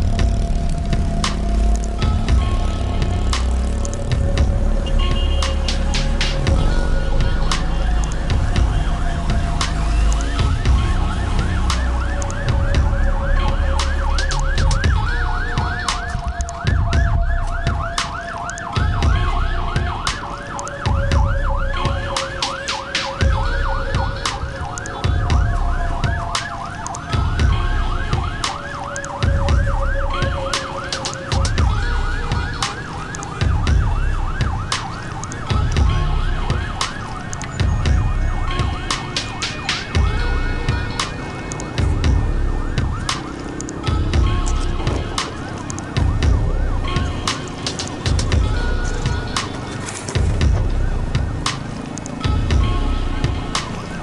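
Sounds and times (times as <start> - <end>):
pulsing low rumble: 0.0 - 5.4, 6.1 - 17.9, 41.8 - 43.0, 45.9 - 47.2, 48.1 - 49.3, 50.2 - 51.4
two-tone siren: 0.0 - 54.0
yelp siren warbling: 0.0 - 54.0.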